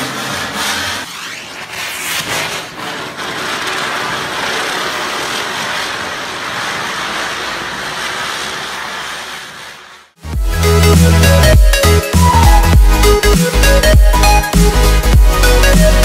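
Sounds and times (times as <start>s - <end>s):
spinning firework fizzing: 1.6s - 10.2s.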